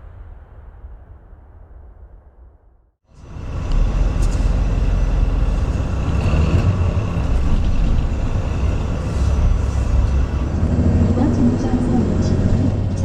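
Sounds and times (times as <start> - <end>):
vehicle rumble from inside: 3.1 - 13.0.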